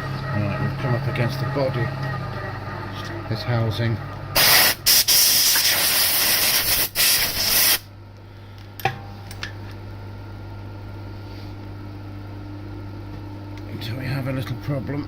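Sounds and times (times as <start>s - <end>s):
low hum: 0.0s - 5.0s
hissing spray bursts: 4.4s - 7.8s.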